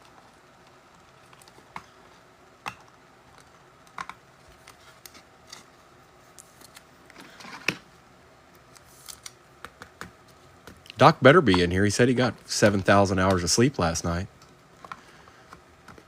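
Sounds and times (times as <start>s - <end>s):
cards clicking and tapping: 8.6s - 11.7s.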